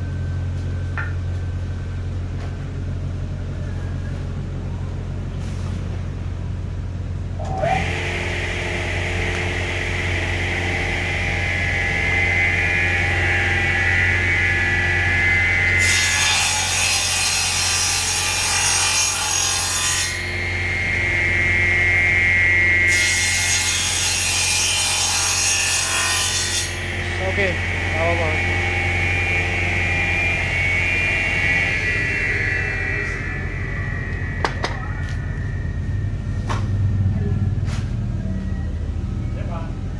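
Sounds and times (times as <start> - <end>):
saw blade cutting wood: 7.4 - 35.4
electric saw motor hum: 7.4 - 37.2.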